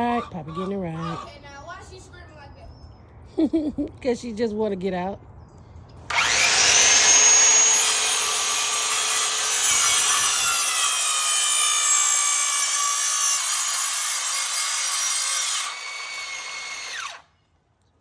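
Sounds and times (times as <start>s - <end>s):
electric saw cutting wood: 6.1s - 17.3s.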